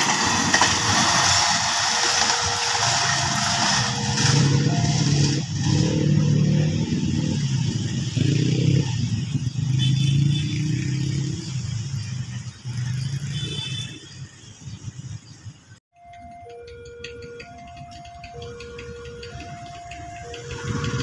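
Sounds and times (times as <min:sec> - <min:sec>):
diesel train engine drone: 0:00.0 - 0:09.9, 0:14.3 - 0:21.0.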